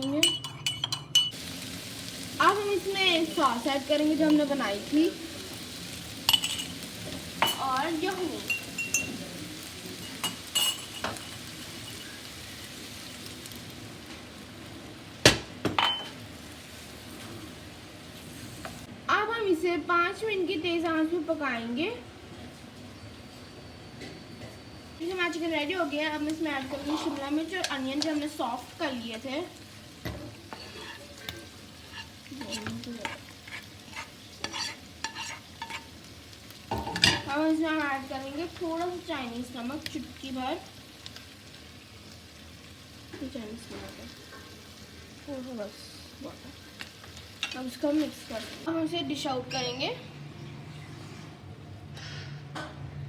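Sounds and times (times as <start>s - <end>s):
spoon clinking against pan: 0.0s - 1.4s, 6.3s - 6.7s, 8.4s - 9.2s, 10.0s - 12.1s, 15.8s - 16.1s
chicken and mushrooms sizzling in a pan: 1.3s - 50.0s
spatula scraping a pan: 30.3s - 36.0s.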